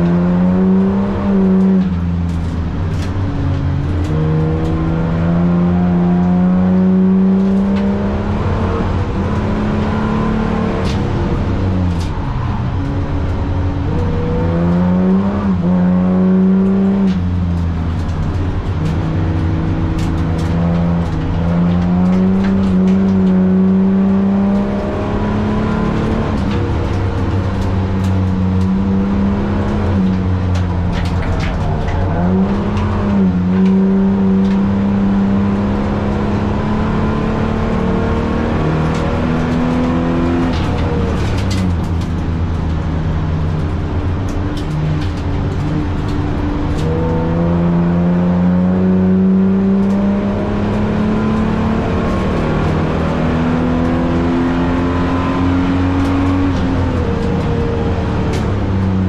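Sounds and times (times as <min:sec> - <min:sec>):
car engine driven hard: 0:00.0 - 0:59.0.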